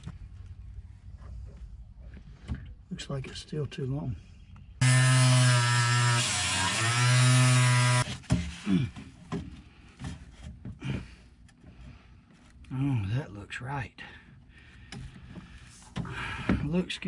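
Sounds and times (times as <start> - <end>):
reciprocating saw cutting plastic pipe: 4.8 - 8.6.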